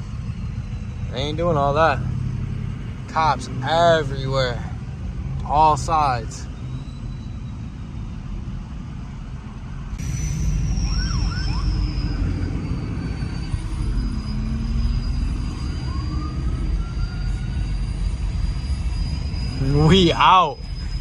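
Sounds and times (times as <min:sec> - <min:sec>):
high steady whine: 0:00.0 - 0:21.0
truck engines rumbling: 0:00.0 - 0:21.0
tone rising in pitch: 0:09.9 - 0:21.0.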